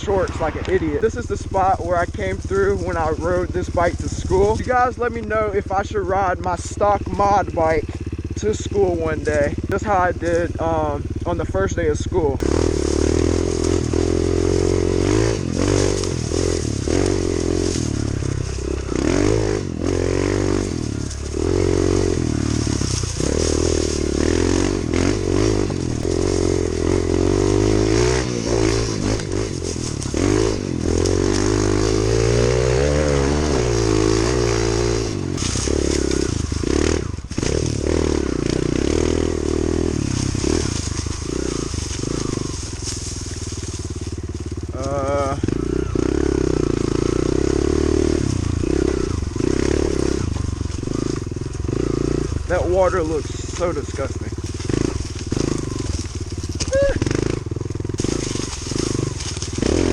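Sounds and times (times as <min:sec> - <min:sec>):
bike knocks and rattles: 0:12.4 - 0:52.4, 0:54.3 - 0:59.9.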